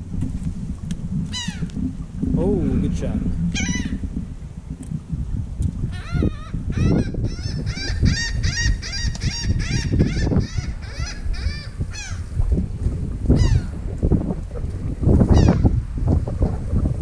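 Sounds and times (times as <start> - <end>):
low rumble: 0.0 - 17.0
bird calling: 1.3 - 1.8, 3.5 - 4.0, 5.9 - 12.3.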